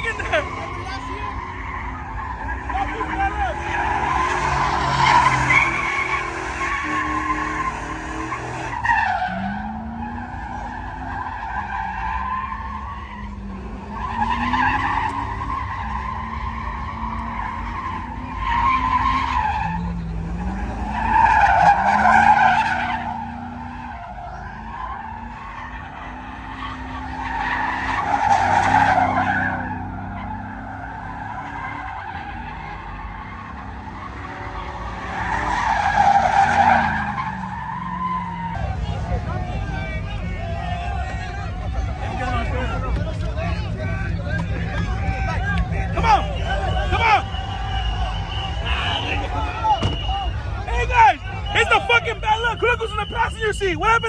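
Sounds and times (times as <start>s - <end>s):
truck engine revving hard: 0.0s - 53.3s
tires squealing on pavement: 0.0s - 54.0s.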